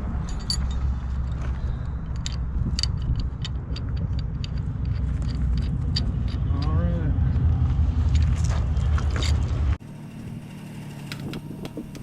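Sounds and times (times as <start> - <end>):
vehicle engine idling: 0.0 - 12.0
irregular clicks and rattles: 0.3 - 9.7.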